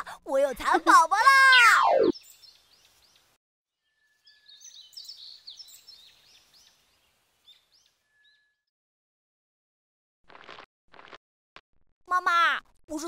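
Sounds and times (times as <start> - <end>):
small birds chirping: 1.5 - 8.6.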